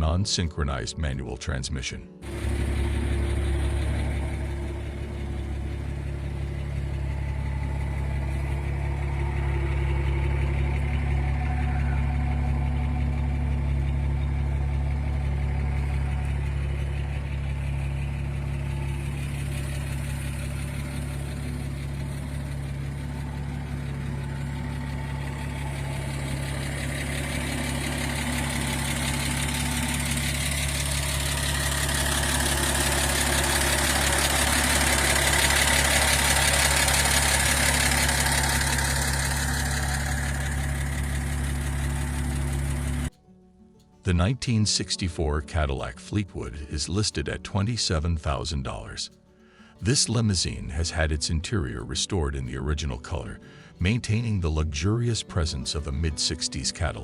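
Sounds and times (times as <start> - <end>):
truck engine idling: 2.2 - 57.0.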